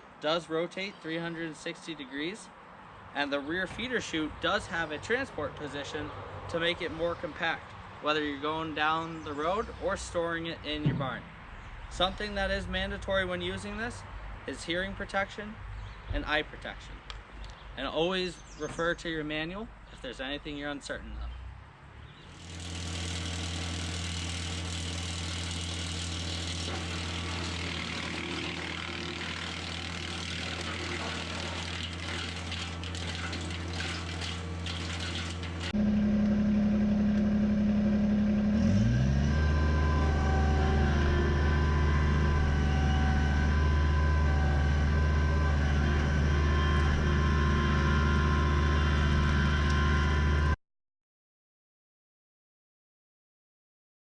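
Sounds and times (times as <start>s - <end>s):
tractor diesel engine: 22.3s - 50.6s
wood chipper running: 22.3s - 50.6s.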